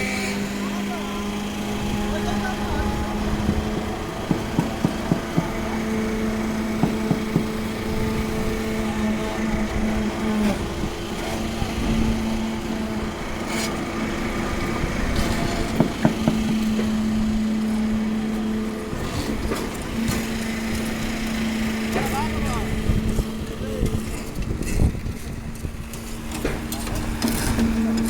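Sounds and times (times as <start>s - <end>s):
small engine running: 0.0s - 28.0s
sharp knocks: 3.5s - 8.1s, 15.2s - 17.0s.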